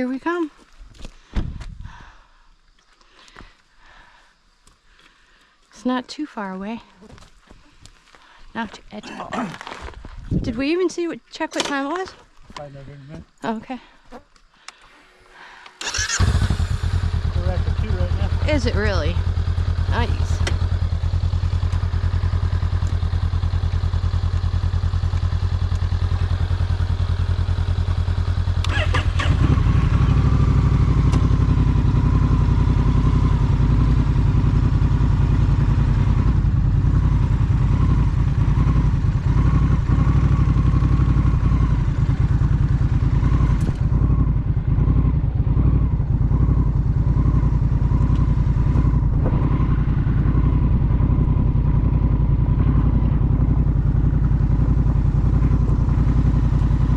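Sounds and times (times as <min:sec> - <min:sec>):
motorcycle engine running: 0:15.8 - 0:56.9.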